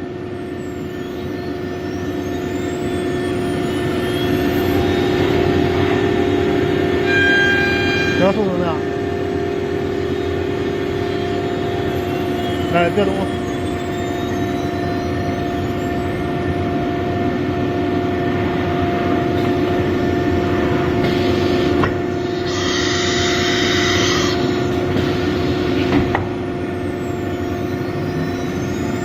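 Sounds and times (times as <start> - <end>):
wood router whine: 20.0 - 26.3.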